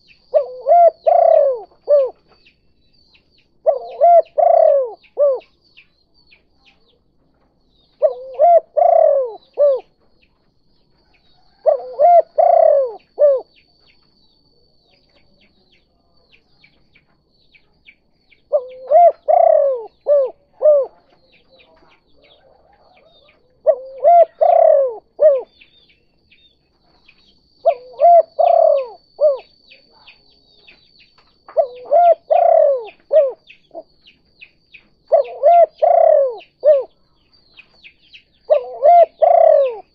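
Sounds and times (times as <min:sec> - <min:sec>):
dove cooing: 0:00.0 - 0:02.4, 0:03.6 - 0:05.6, 0:08.0 - 0:10.0, 0:11.3 - 0:13.6, 0:18.4 - 0:25.7, 0:27.6 - 0:30.4, 0:31.4 - 0:34.2, 0:35.0 - 0:39.9
faint high chirping: 0:00.0 - 0:39.9.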